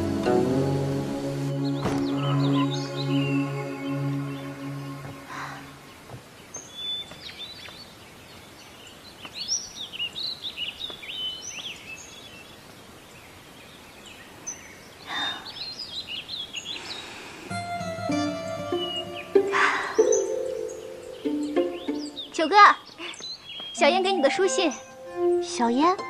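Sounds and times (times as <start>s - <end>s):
faint outdoor hiss: 0.0s - 26.0s
small birds chirping: 1.5s - 26.0s.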